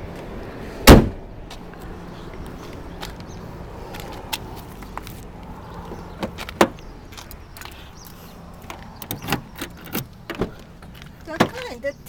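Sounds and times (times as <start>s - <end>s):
car door shutting: 0.8s - 1.2s, 9.0s - 10.6s.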